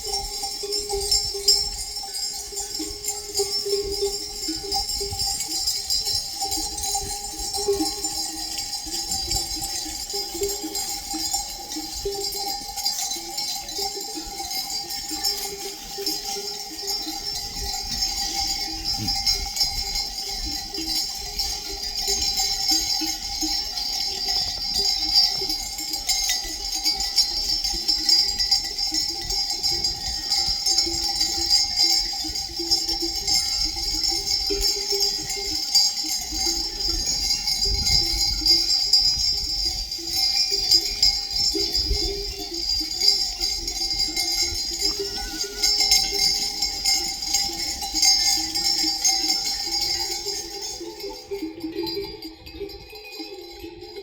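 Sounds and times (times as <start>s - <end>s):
animal bells ringing and clanking: 0.0s - 54.0s.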